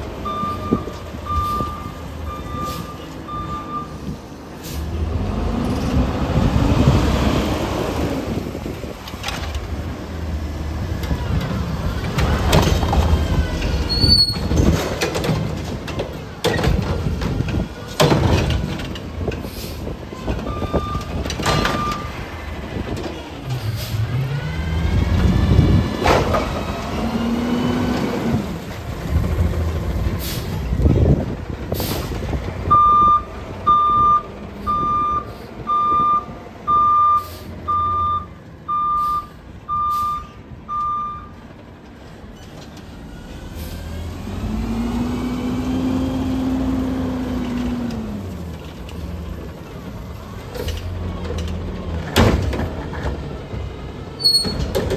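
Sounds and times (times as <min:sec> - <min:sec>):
diesel engine under load: 0:00.0 - 0:54.9
reversing beeper: 0:00.2 - 0:04.0, 0:32.7 - 0:41.4
air brake hisses: 0:04.6 - 0:04.9, 0:37.2 - 0:37.6.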